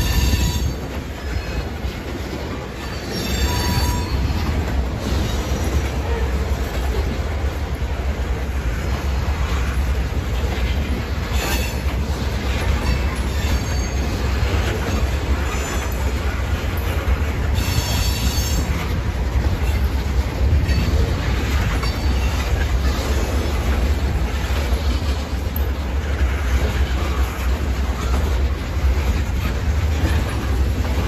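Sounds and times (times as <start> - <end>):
metallic wheel squeal: 0.0 - 1.8, 2.8 - 5.6, 12.7 - 16.1, 17.5 - 18.9
train wheels rumbling on rail: 0.0 - 31.0.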